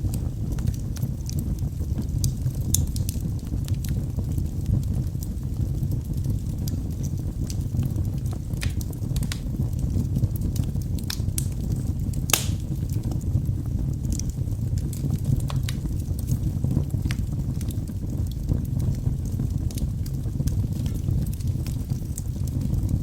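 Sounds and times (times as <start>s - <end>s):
firewood crackling and popping: 0.0s - 23.0s.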